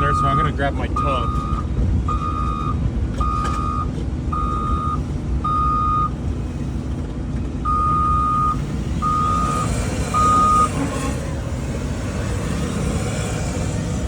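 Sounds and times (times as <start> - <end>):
vehicle backup alarm beeping: 0.0 - 6.3, 7.6 - 11.2.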